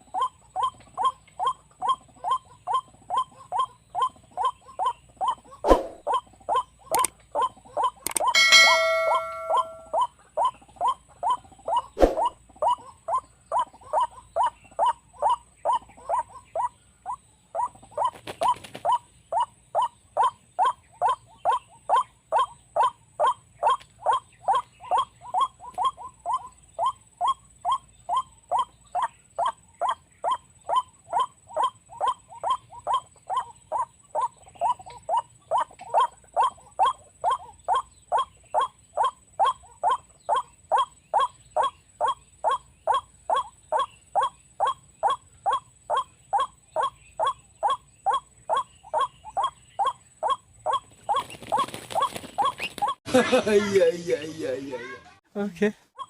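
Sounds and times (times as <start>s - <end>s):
waterhen calling: 0.0s - 10.6s, 44.6s - 53.0s.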